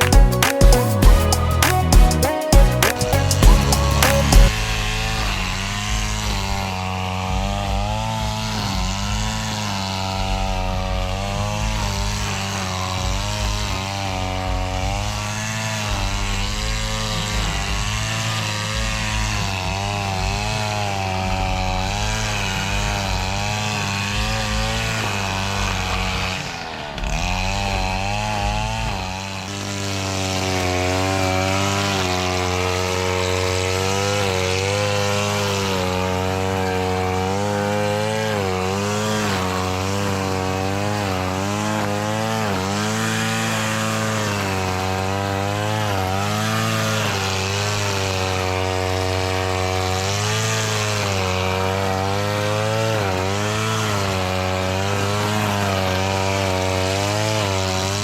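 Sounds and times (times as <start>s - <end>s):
lawn mower engine running: 0.0s - 7.5s.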